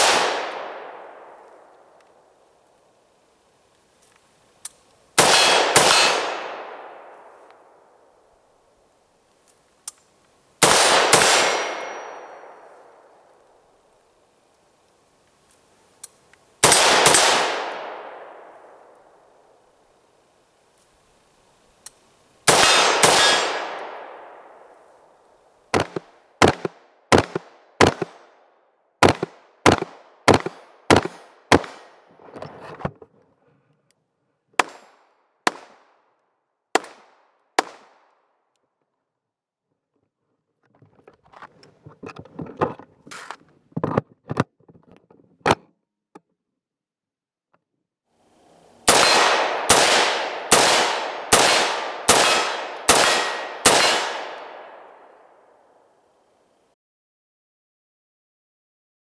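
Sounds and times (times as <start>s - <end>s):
rapid sharp gunshots: 0.0s - 0.8s, 5.2s - 6.7s, 10.6s - 11.8s, 16.6s - 17.8s, 22.5s - 23.8s, 25.8s - 28.2s, 29.0s - 31.9s, 48.9s - 54.6s
rifle gunshots echoing: 0.0s - 1.4s, 5.2s - 7.4s, 10.6s - 12.8s, 16.6s - 18.8s, 22.5s - 24.6s, 25.7s - 28.2s, 29.0s - 31.9s, 34.6s - 35.8s, 36.8s - 37.0s, 48.9s - 55.1s.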